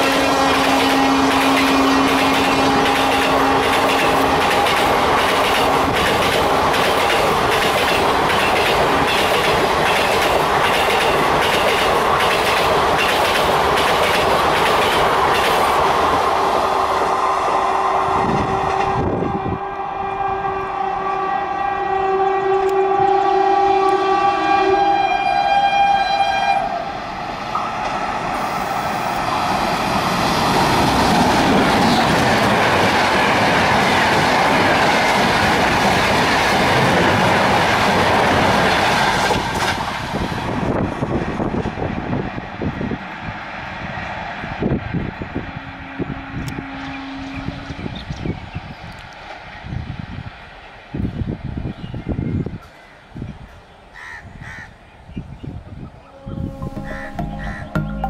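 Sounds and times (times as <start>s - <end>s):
two-tone locomotive horn: 0.0s - 4.5s, 17.2s - 27.0s, 45.6s - 48.1s, 56.0s - 58.0s
rush of passing train: 0.0s - 57.1s.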